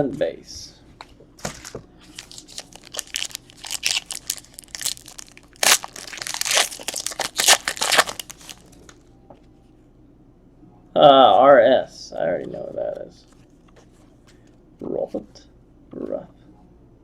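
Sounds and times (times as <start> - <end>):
wrapper crinkling and tearing: 1.4 - 9.0.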